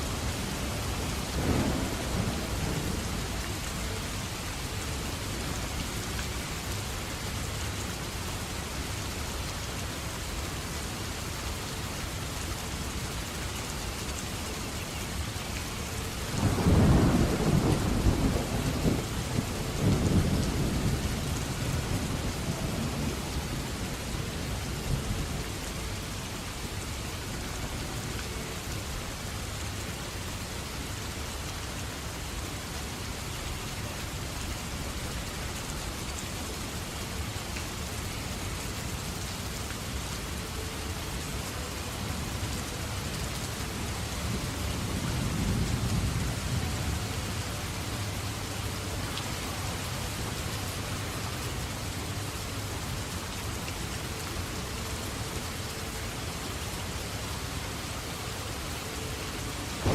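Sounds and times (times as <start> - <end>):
heavy rain falling: 0.0 - 59.9
thunder rolling: 1.2 - 3.2.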